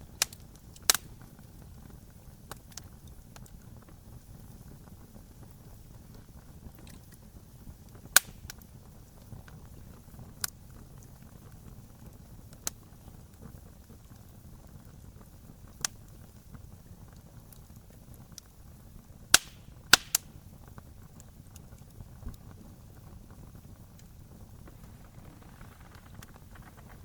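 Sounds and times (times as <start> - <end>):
fire popping: 0.0 - 27.0
wood fire rumbling: 0.0 - 27.0.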